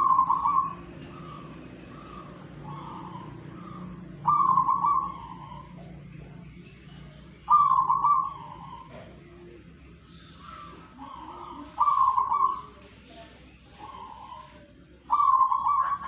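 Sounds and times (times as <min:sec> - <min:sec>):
bird calling roughly: 0:00.0 - 0:06.0, 0:07.5 - 0:09.1, 0:10.1 - 0:12.8, 0:13.7 - 0:16.0.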